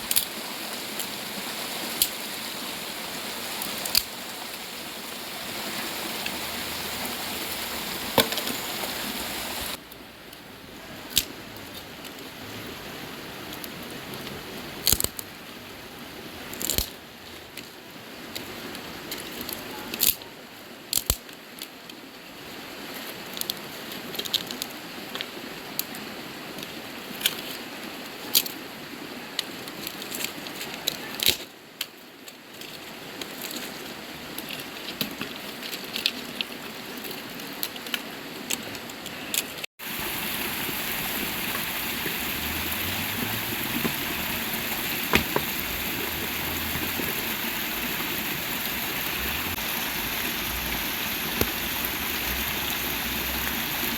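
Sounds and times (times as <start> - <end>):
running water hiss: 0.0 - 9.8, 39.8 - 53.9
sharp crackles and pops: 3.5 - 5.2, 39.3 - 53.9.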